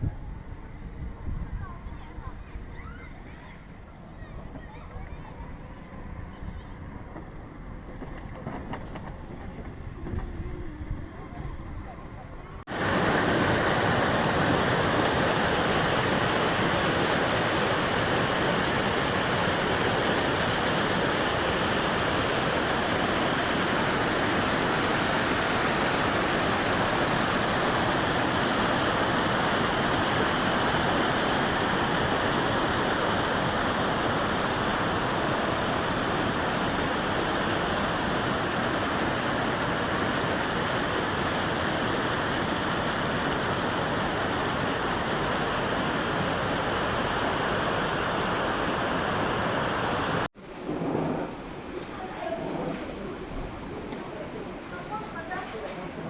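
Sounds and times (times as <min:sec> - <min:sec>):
fast-flowing water rushing: 0:12.7 - 0:50.3.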